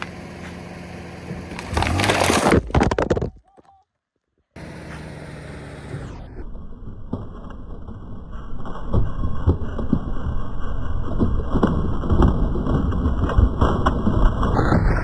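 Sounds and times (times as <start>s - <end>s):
car engine running: 0.0s - 2.6s, 4.6s - 7.3s
tyre crushing drink cans: 1.5s - 3.6s.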